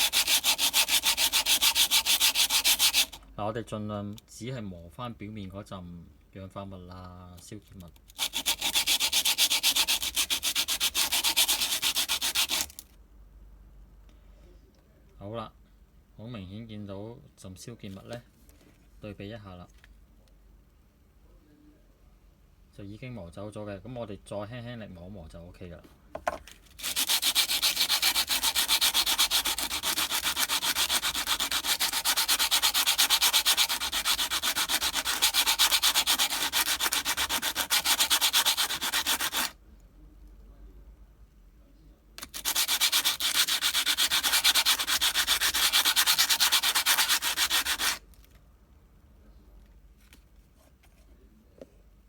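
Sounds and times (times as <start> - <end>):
brake pad sanding on sandpaper: 0.0 - 3.2, 8.2 - 12.8, 26.8 - 39.5, 42.2 - 48.0.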